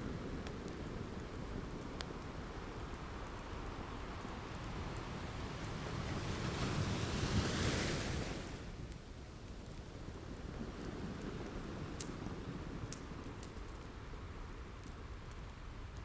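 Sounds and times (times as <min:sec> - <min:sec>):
faint wood fire crackles: 0:00.0 - 0:16.0
ocean waves: 0:05.4 - 0:08.6.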